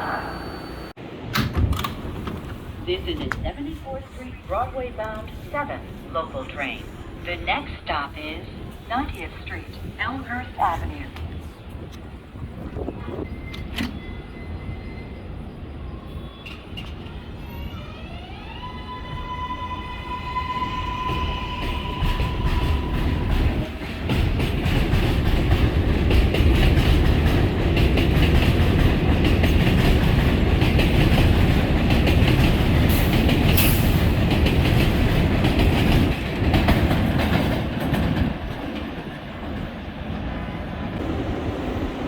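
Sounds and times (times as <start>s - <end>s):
subway train motor whine: 0.0s - 6.1s, 13.1s - 23.5s
train wheels clickety-clack: 21.1s - 39.8s.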